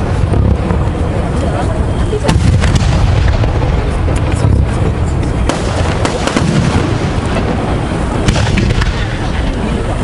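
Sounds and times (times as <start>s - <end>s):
fireworks bursting rumble: 0.0s - 10.0s
sharp firework cracks: 2.2s - 10.0s.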